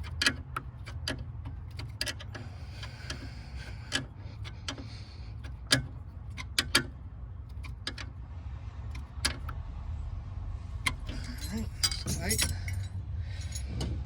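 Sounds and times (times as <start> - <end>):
hand tools clinking against metal: 10.9 - 14.0.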